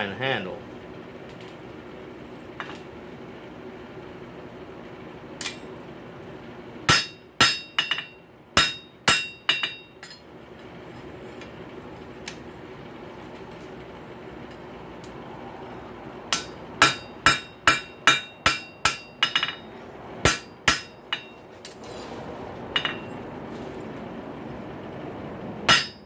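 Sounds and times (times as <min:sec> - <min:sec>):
hammer ringing on anvil: 0:06.9 - 0:10.2, 0:16.3 - 0:21.4, 0:22.8 - 0:23.1, 0:25.7 - 0:26.0.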